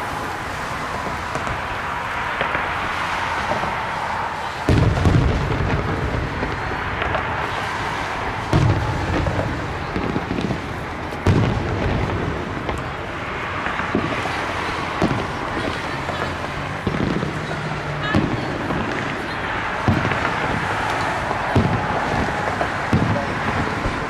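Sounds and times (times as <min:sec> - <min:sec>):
fireworks booming: 0:00.0 - 0:24.0
fireworks crackling: 0:00.0 - 0:24.0.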